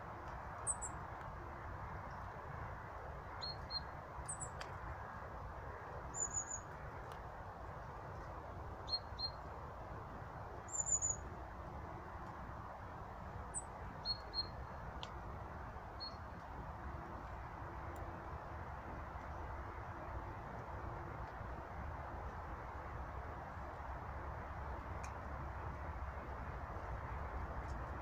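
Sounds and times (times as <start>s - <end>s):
bird trills: 6.1s - 6.7s, 10.7s - 11.2s
small birds calling: 6.1s - 6.8s, 10.7s - 11.2s.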